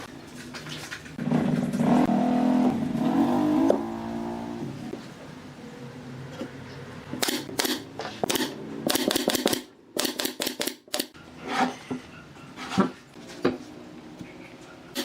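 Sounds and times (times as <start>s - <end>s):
rapid sharp clicks and knocks: 7.2s - 11.2s.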